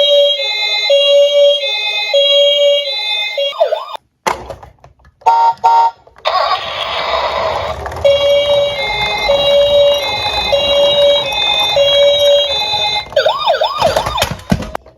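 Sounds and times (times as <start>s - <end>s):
electronic siren tones: 3.4s - 4.0s, 13.1s - 14.4s.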